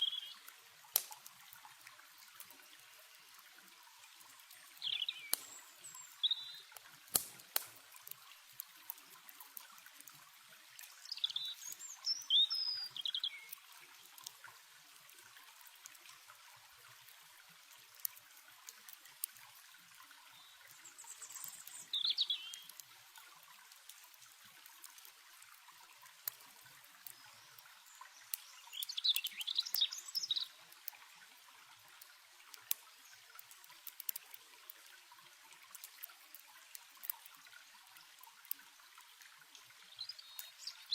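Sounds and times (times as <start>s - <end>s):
songbirds chirping: 0.0s - 0.5s, 4.1s - 6.8s, 10.8s - 14.2s, 20.2s - 22.8s, 26.6s - 30.8s, 39.8s - 40.9s
stream running: 0.0s - 40.9s
campfire crackling: 0.1s - 40.7s.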